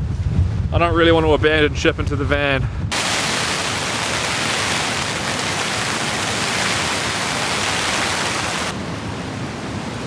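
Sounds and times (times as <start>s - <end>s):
heavy rain falling: 2.9s - 8.9s.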